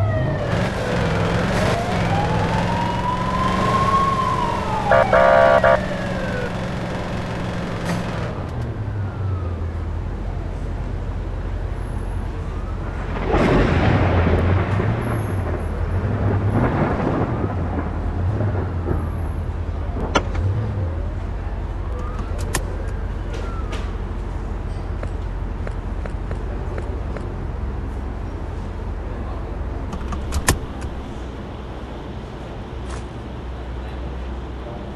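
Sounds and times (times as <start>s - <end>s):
police siren wailing: 0.0s - 10.0s, 12.2s - 13.6s, 19.8s - 24.2s
traffic rumble: 0.0s - 34.9s
vehicles passing: 0.0s - 34.9s
loud horn blast: 4.8s - 6.5s.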